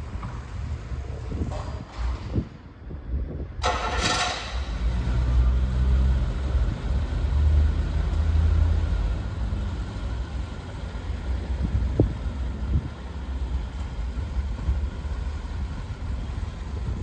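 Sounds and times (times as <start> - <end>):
car engine starting and running: 3.6 - 17.0.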